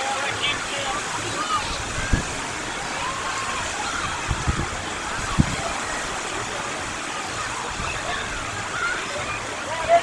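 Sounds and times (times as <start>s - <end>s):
faint distant voices: 0.0s - 10.0s
sea surf: 0.0s - 10.0s.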